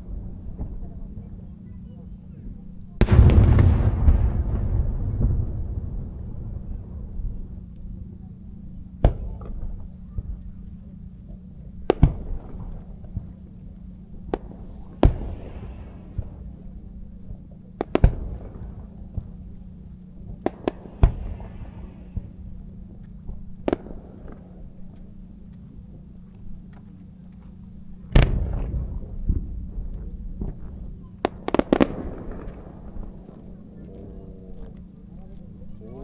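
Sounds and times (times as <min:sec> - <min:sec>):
fizzing crackle of fireworks: 0:00.0 - 0:36.0
small firework pops: 0:09.0 - 0:10.5, 0:11.8 - 0:13.4, 0:14.3 - 0:16.5, 0:17.6 - 0:19.4, 0:20.2 - 0:33.5.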